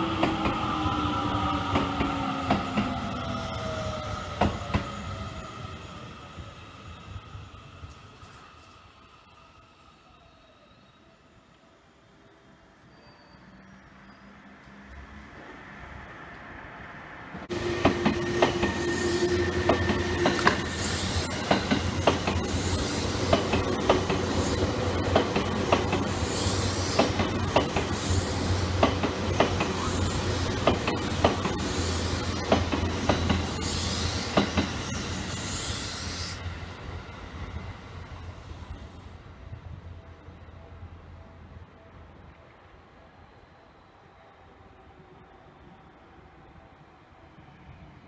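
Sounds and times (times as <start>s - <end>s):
electric train rolling past: 0.0s - 48.0s
wheels clacking over rail joints: 28.7s - 31.7s, 32.3s - 35.0s.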